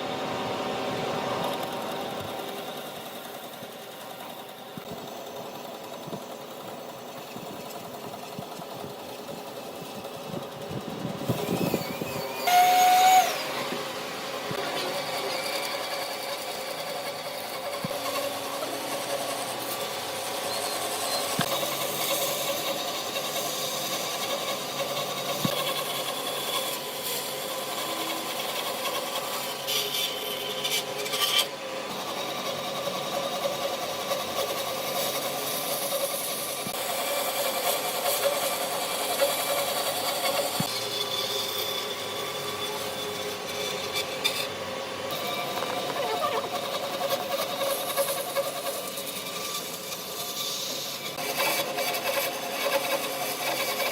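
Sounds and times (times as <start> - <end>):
power tool running on wood: 0.0 - 53.9
whistling burst: 11.4 - 13.5.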